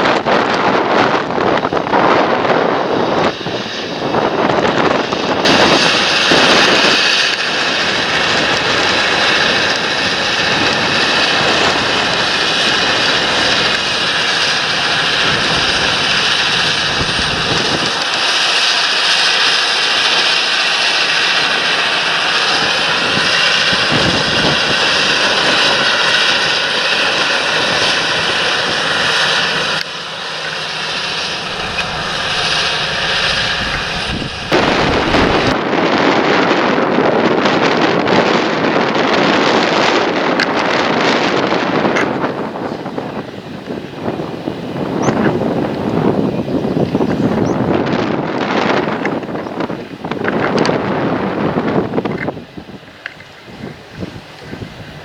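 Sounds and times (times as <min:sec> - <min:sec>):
faint whine: 0:00.0 - 0:35.7
tractor engine and cooling fan: 0:00.0 - 0:55.0
wind buffeting microphone: 0:00.0 - 0:55.0.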